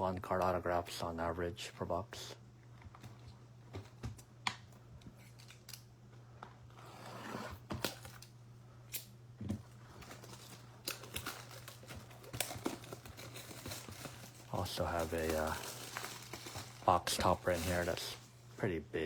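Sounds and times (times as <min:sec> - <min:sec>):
low electrical hum: 0:00.0 - 0:19.0
packaging crinkling: 0:09.6 - 0:18.4
packaging clicks: 0:10.0 - 0:18.1
scissors snipping packaging: 0:10.0 - 0:18.1.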